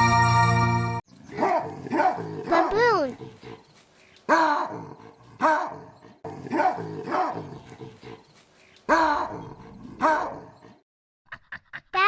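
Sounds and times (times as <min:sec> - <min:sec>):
animal bark-like calls: 0:04.3 - 0:08.2, 0:08.9 - 0:10.8.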